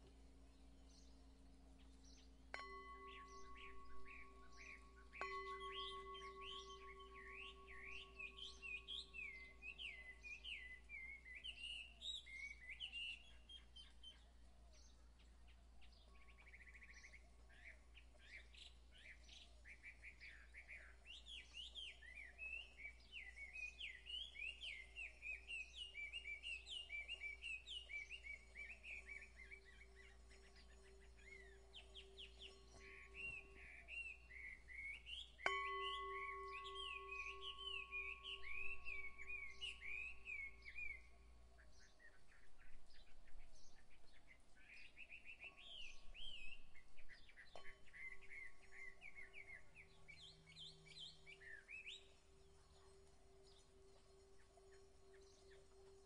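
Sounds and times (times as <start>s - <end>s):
birds chirping and trilling: 0.0s - 56.0s
chime ringing: 2.6s - 10.3s, 27.9s - 41.2s.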